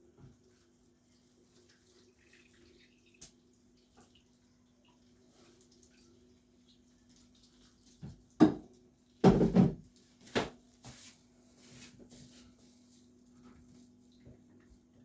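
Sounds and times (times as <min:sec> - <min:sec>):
knocks on hard object: 0:08.4 - 0:08.6, 0:09.2 - 0:09.8.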